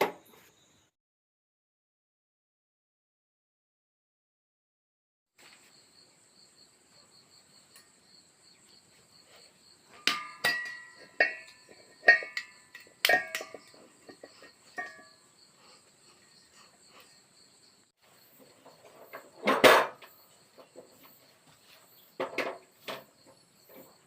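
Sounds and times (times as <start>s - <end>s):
metal stove parts clanking: 9.9s - 15.2s, 18.6s - 20.7s.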